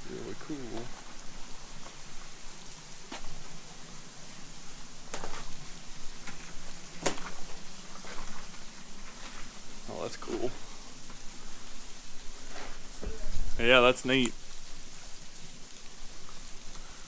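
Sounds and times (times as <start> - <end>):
waterfall hissing: 0.0 - 5.0, 9.7 - 17.0.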